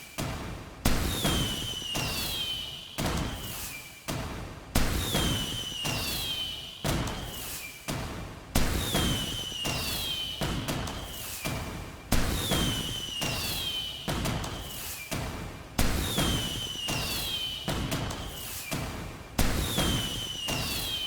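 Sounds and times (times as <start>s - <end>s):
falling firework whistle: 1.1s - 3.9s, 4.9s - 7.6s, 8.7s - 11.6s, 12.2s - 15.1s, 15.9s - 18.8s, 19.5s - 21.0s.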